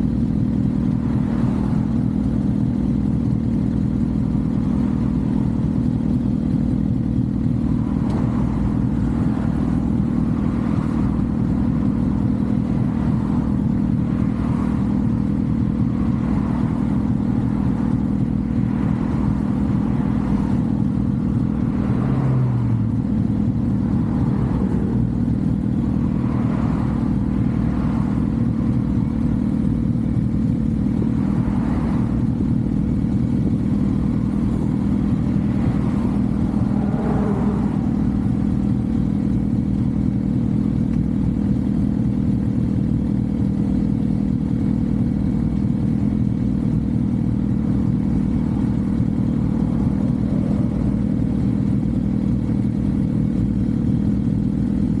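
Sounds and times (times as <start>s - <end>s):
motorcycle engine cruising: 0.0s - 55.0s
wind and road noise: 0.0s - 55.0s.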